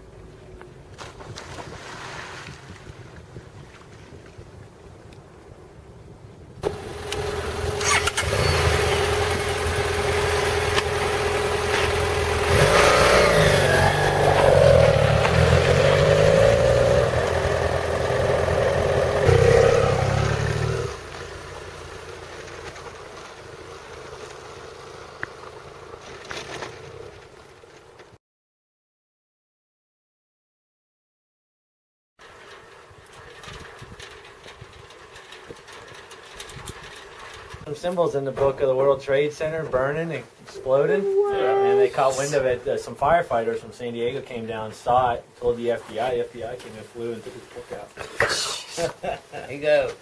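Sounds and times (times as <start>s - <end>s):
motorcycle engine revving: 6.6s - 27.1s.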